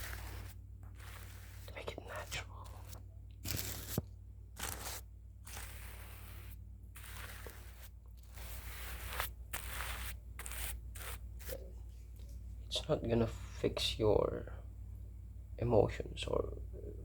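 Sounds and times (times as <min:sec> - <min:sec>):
brush scratching microphone: 0:00.0 - 0:04.0, 0:04.6 - 0:11.7.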